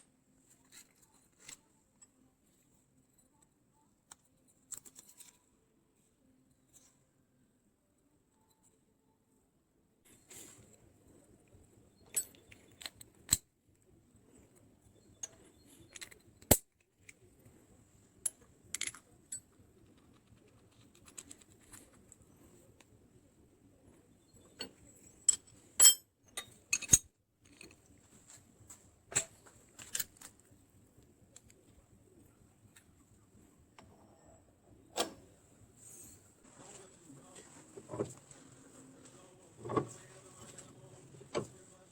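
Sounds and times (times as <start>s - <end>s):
small metal parts clinking: 12.0s - 13.4s, 15.1s - 17.2s, 18.2s - 22.0s, 24.4s - 27.9s, 29.1s - 30.5s.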